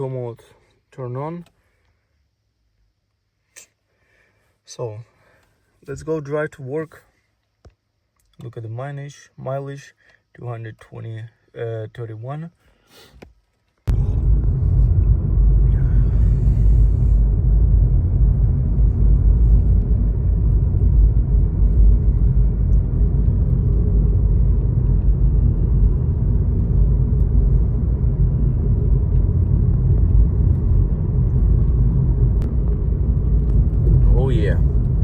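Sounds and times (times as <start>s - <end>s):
road and wind noise from car: 13.9s - 35.0s.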